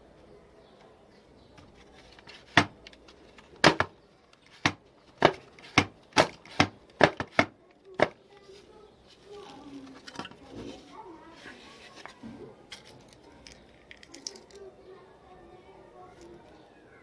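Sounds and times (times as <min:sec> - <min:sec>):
sharp knocks: 0:03.6 - 0:04.0.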